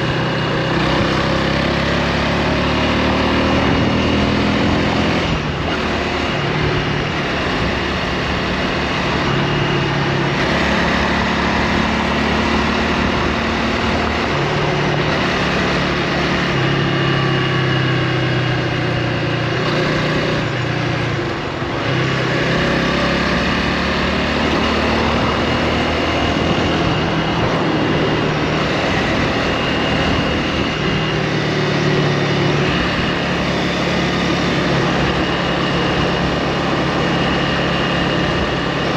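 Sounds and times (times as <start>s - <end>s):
motorcycle engine running: 0.0s - 38.9s
wind noise on microphone: 3.6s - 11.0s, 24.4s - 38.9s.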